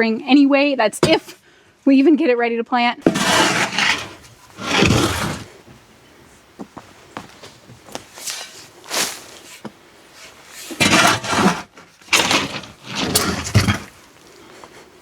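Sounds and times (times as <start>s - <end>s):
bedding being scraped off floor: 3.0s - 5.6s, 10.2s - 14.1s.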